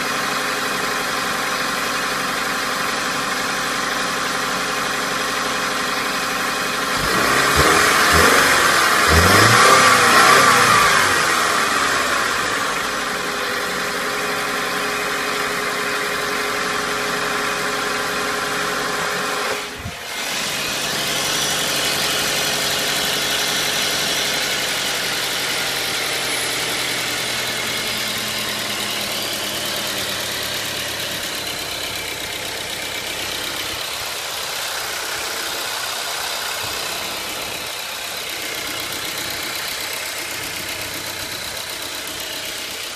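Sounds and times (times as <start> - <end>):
car engine running: 0.0 - 42.9.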